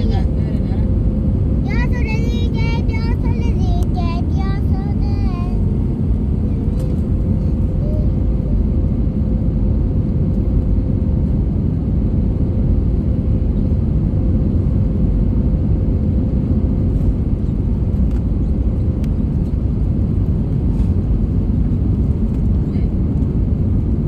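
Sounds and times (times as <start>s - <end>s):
aircraft cabin engine rumble: 0.0s - 24.0s.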